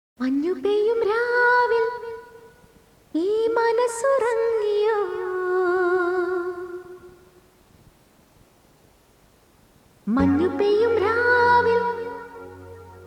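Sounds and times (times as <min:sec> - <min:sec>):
woman singing wordless notes: 0:00.2 - 0:02.6, 0:03.2 - 0:07.3, 0:10.1 - 0:13.0.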